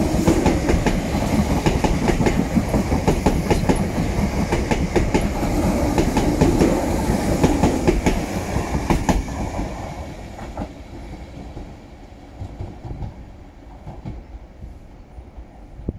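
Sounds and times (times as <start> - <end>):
train rumble: 0.0 - 15.9
train wheels clattering over joints: 0.2 - 9.7.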